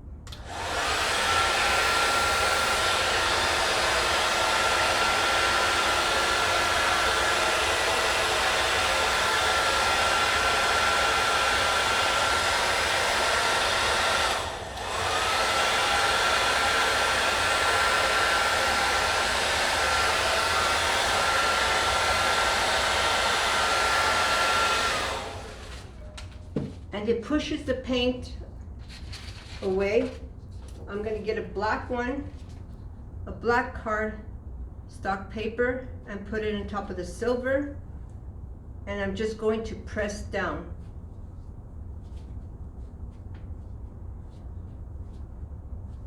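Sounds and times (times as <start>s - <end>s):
blow dryer motor whine: 0.3s - 26.7s.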